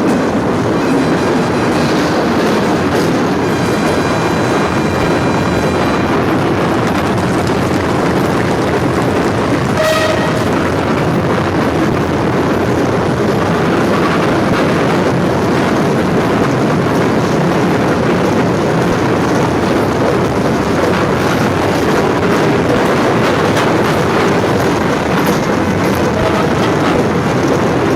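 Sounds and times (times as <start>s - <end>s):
train running on rails: 0.0s - 27.9s
train horn toot: 9.8s - 10.8s, 26.1s - 27.1s.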